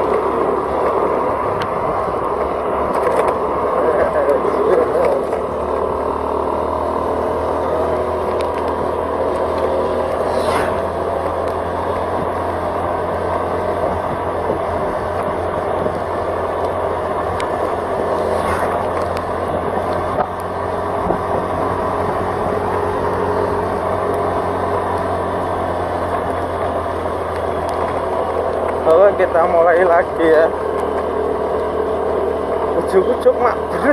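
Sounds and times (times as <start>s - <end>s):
engine hum: 0.0s - 33.9s
brief swishes: 10.2s - 11.0s, 18.1s - 18.9s
wind noise: 13.7s - 22.7s.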